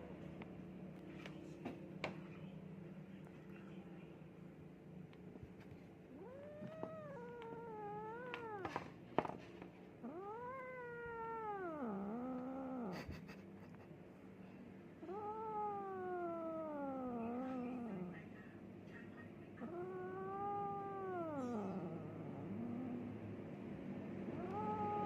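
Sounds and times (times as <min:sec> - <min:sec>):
cat yowling: 0:06.1 - 0:08.8, 0:10.0 - 0:13.3, 0:15.0 - 0:18.2, 0:19.6 - 0:23.2, 0:24.3 - 0:25.0.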